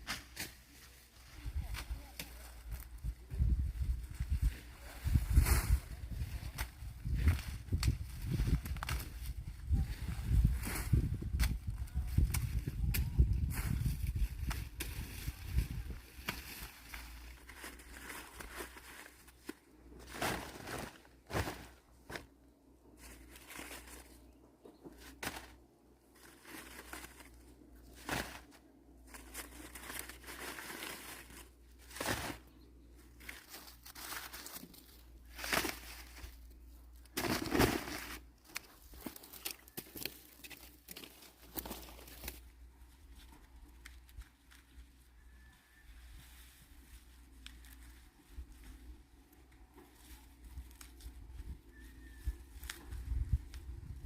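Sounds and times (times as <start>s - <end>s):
dry corn leaves rustling: 0.0s - 22.3s, 22.9s - 24.4s, 25.0s - 54.0s.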